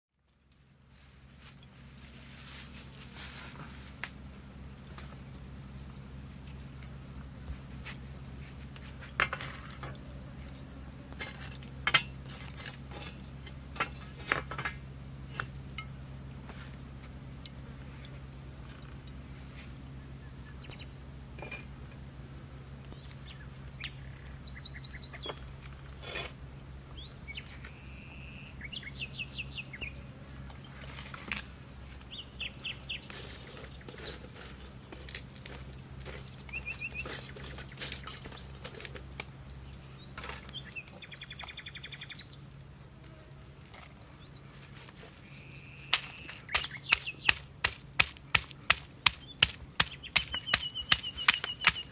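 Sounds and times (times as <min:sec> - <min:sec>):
birds chirping: 0:00.2 - 0:51.9
insect pulsed chirp: 0:00.8 - 0:08.8, 0:14.8 - 0:47.6.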